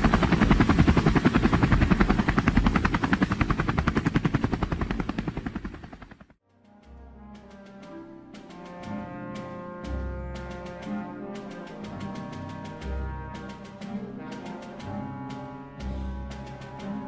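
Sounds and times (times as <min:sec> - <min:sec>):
helicopter rotor chopping: 0:00.0 - 0:06.4
slow music with brass tones: 0:06.4 - 0:17.0.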